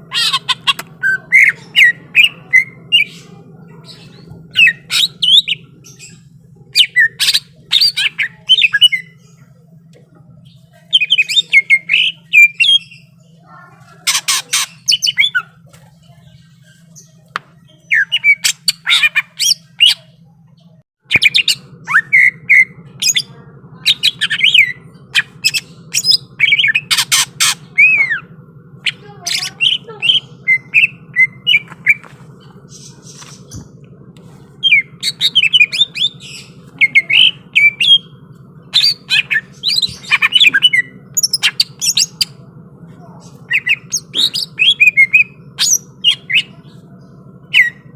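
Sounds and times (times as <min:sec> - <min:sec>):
faint low hum: 0:00.0 - 0:47.9.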